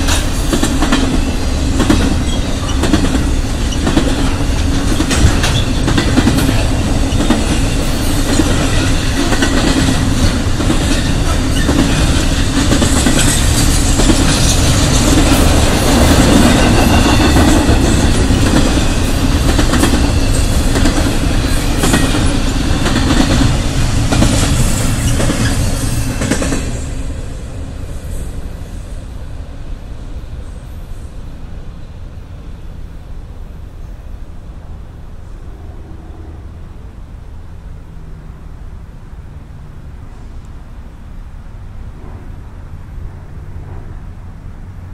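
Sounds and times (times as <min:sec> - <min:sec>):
wheels clacking over rail joints: 0:00.0 - 0:27.4
freight cars rumbling past: 0:00.0 - 0:44.9.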